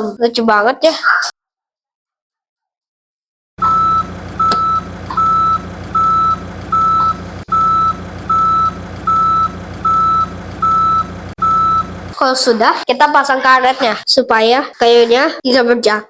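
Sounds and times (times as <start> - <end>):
low engine hum: 3.6 - 12.2
reversing alarm beeping: 3.6 - 12.2.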